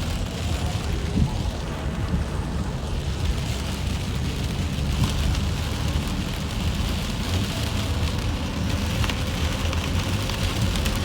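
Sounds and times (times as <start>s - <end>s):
hard rain pouring: 0.0s - 11.0s.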